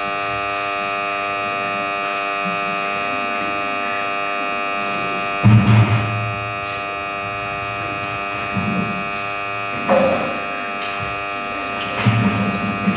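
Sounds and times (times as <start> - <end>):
ceiling fan humming: 0.0 - 12.9.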